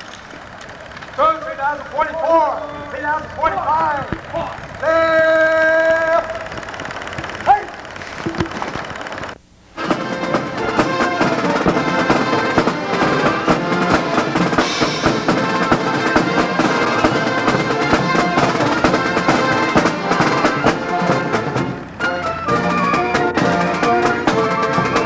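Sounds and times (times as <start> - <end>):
music with prominent drums: 9.8 - 25.0.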